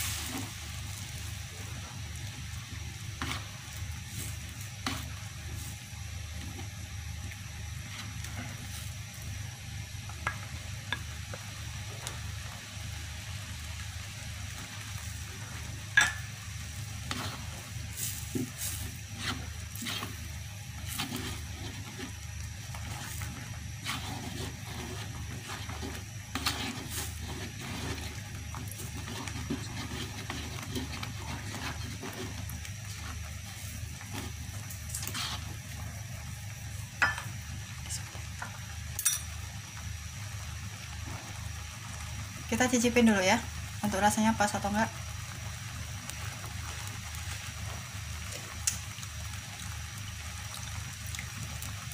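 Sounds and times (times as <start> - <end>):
spatula scraping and stirring: 0.0 - 9.2, 14.9 - 35.9
sauce sizzling in a wok: 0.0 - 51.9.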